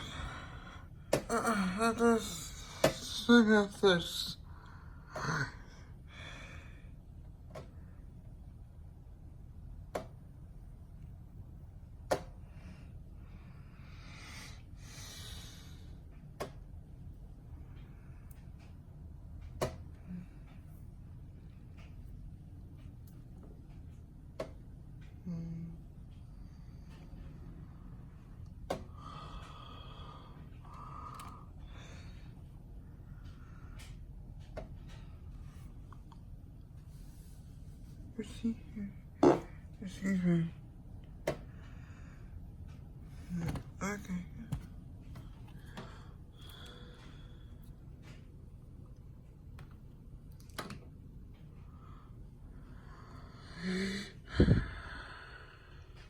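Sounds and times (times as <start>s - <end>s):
ceiling fan humming: 0.0s - 56.0s.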